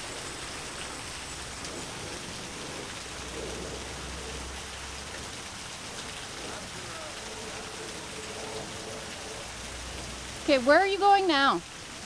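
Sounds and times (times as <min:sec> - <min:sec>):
light rain hissing: 0:00.0 - 0:12.0
faint low rumble: 0:01.4 - 0:10.6.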